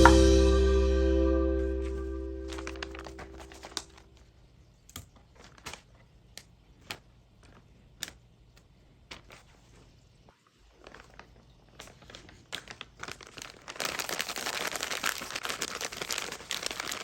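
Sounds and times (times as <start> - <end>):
background music: 0.0 - 3.5.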